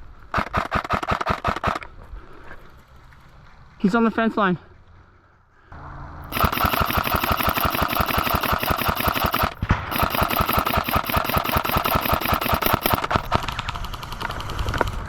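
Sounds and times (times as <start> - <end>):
airsoft rifle firing full auto: 0.3 - 1.9, 6.3 - 15.0.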